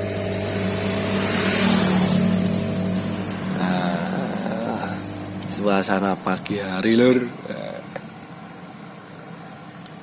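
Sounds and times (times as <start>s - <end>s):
rushing noise: 0.0s - 6.8s
engine droning hum: 0.0s - 9.9s.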